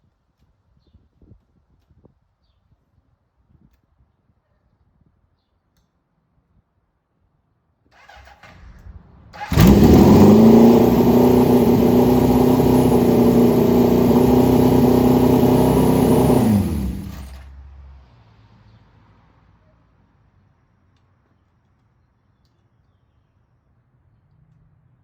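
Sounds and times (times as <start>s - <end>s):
motor running: 9.5s - 17.4s.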